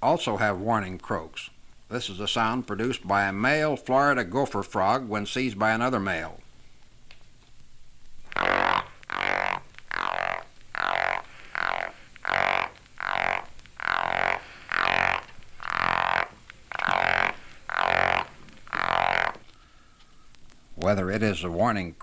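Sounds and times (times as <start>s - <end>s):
frog croaking: 8.2s - 20.0s.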